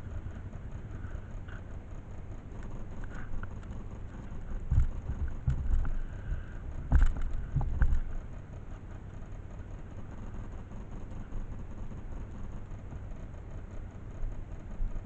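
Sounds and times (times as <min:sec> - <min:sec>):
motorcycle engine and road rumble: 0:00.0 - 0:15.0
loud thumps and knocks: 0:06.9 - 0:08.0.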